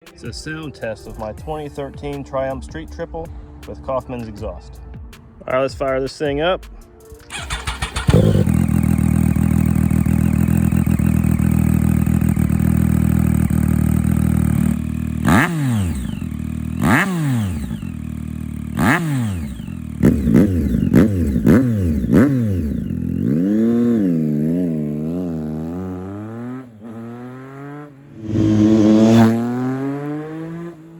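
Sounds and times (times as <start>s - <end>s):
motorcycle engine revving: 7.3s - 30.9s.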